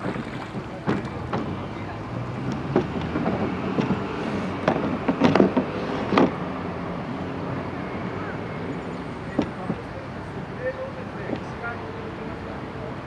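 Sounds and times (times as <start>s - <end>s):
faint voices: 0.0s - 5.0s, 7.0s - 13.0s
oars and gear knocking in boat: 0.0s - 6.4s, 9.3s - 10.1s.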